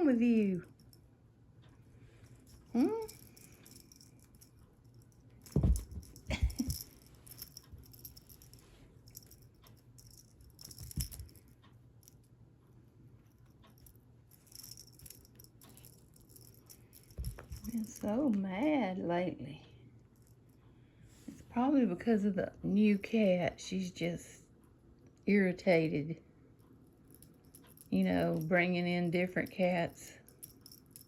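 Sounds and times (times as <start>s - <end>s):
cat toy rattling and jingling: 2.2s - 11.6s, 13.7s - 18.3s, 27.0s - 31.0s.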